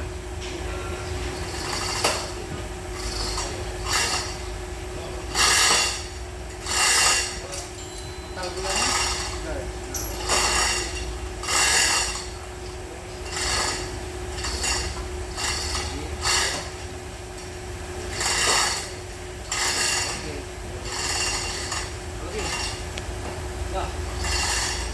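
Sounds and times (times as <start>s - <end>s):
rasping rubbing strokes: 24.0s - 24.9s.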